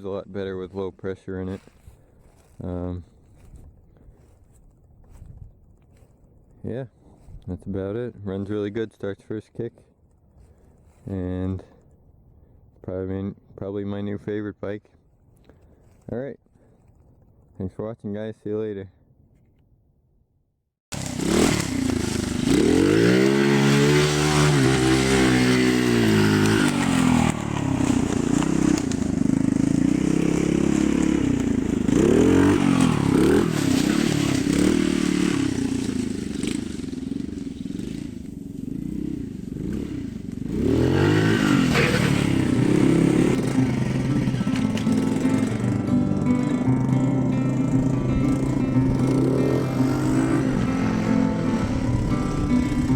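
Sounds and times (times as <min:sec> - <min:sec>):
minibike engine revving: 0:20.9 - 0:52.9.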